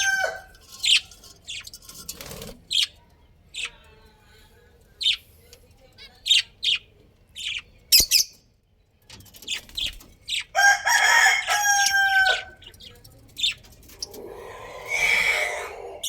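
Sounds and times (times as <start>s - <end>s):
rooster crowing: 0.0s - 0.6s, 10.6s - 12.6s, 14.2s - 16.0s.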